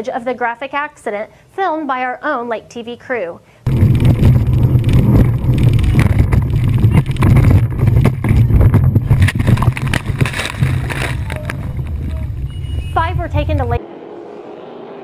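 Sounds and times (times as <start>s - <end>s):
knocks and thumps: 3.7s - 13.8s
motorboat engine rumble: 3.7s - 13.8s.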